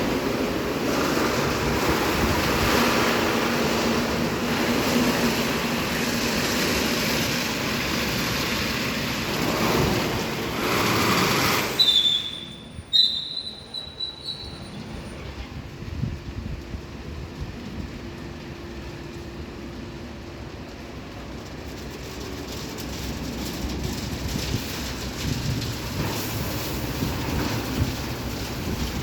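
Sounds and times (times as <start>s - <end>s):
car wash spray and machinery: 0.0s - 29.0s
short high-pitched squeals: 11.6s - 15.2s.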